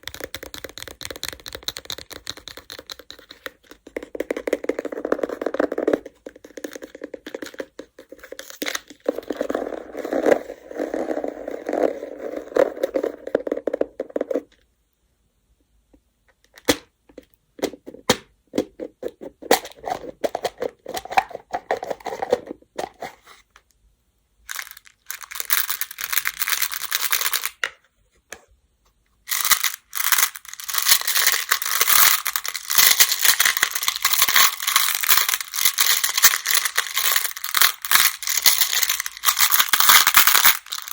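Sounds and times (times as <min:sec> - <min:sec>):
game stones clattering: 0:29.3 - 0:40.9.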